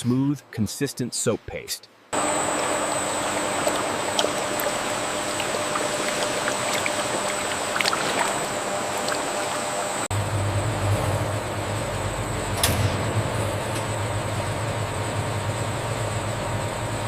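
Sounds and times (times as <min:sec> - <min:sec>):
deeper machine hum: 0:02.2 - 0:17.0
thin high machine whine: 0:02.2 - 0:17.0.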